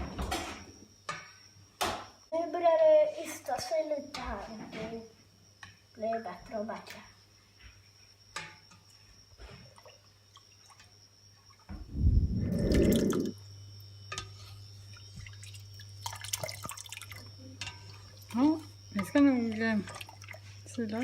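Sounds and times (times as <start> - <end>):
low steady hum: 11.7 - 20.5
loud low rumble: 11.9 - 13.3
milk curdling in a saucepan: 14.1 - 21.0.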